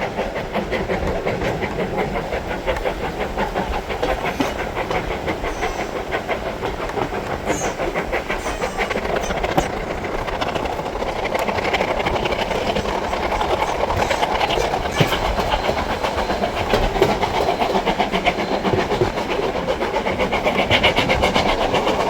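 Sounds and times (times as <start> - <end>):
carriage wheels on rails: 0.0 - 22.0
steam train chuffing: 0.0 - 22.0
faint high squeals: 5.4 - 6.0, 7.4 - 10.0.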